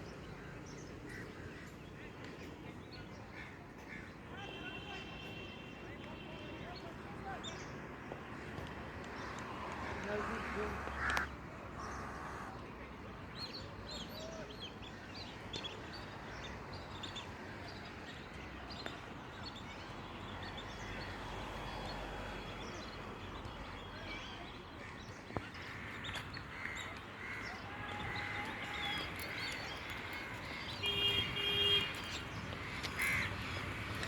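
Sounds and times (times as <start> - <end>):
birds chirping: 13.2 - 34.0.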